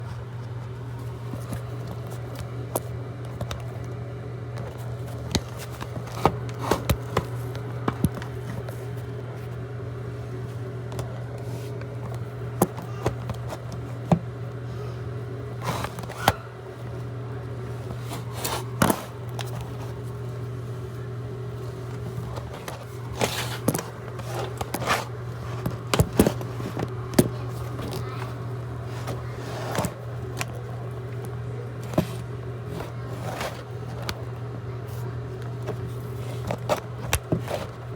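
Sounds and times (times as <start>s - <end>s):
clicks knocks and scrapes in a vent: 0.0s - 9.7s, 10.4s - 14.6s, 15.5s - 17.0s, 17.6s - 37.9s
motor humming: 0.0s - 37.9s.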